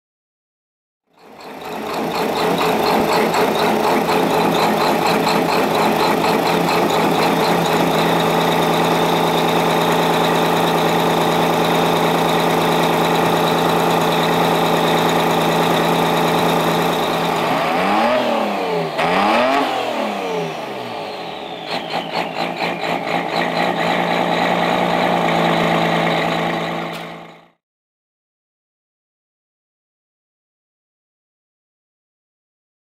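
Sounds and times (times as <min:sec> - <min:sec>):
race truck diesel engine revving: 0:01.2 - 0:27.6.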